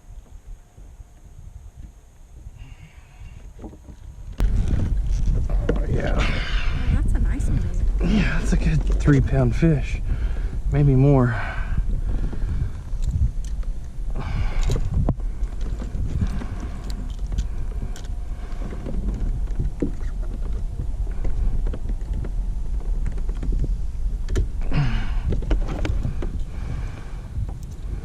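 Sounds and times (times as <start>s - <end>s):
wind rumbling over microphone: 0.0s - 28.0s
knocks and clatter on kayak: 3.4s - 6.2s, 7.0s - 9.4s, 14.2s - 27.7s.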